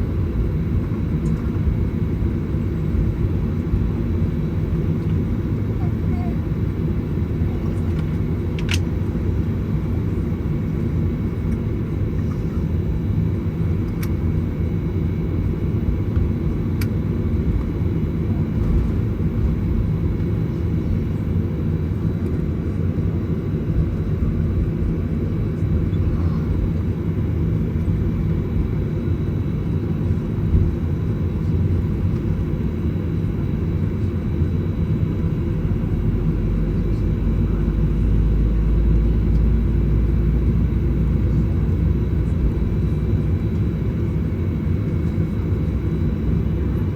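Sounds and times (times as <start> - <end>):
low aircraft cabin rumble: 0.0 - 46.9.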